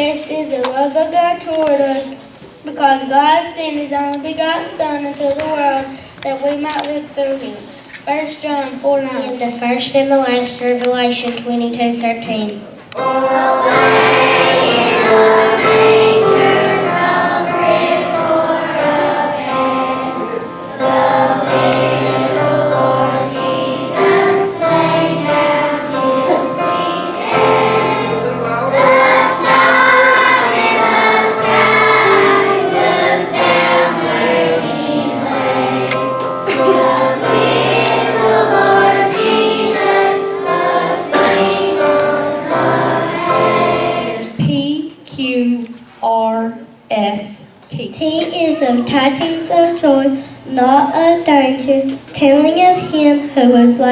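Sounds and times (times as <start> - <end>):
children's choir singing: 12.9 - 44.5
low sustained accompanying notes: 13.0 - 44.4.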